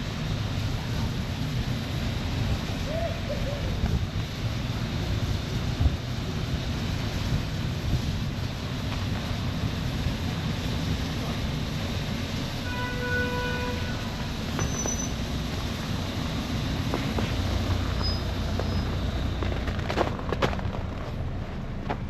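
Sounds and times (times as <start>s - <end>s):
low rumble of traffic: 0.0s - 22.0s
horn-like tone: 12.6s - 14.2s.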